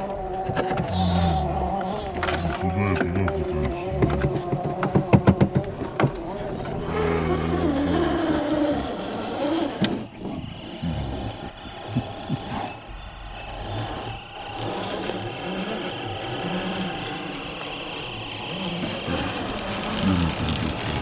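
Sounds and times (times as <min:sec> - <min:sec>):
rc truck motors whining: 0:06.9 - 0:21.0.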